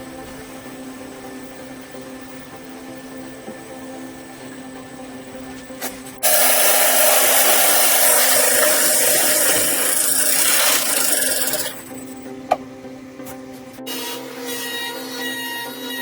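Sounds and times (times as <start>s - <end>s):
tool scraping wood: 6.2s - 12.0s.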